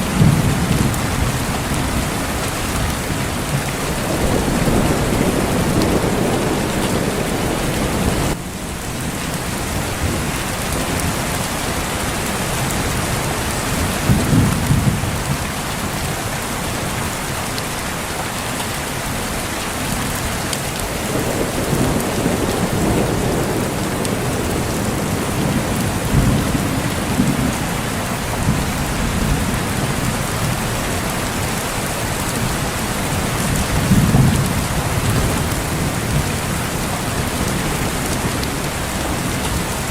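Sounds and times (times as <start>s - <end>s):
low thunder rumbling: 0.0s - 11.9s, 20.8s - 39.9s
heavy rain falling: 0.0s - 39.9s.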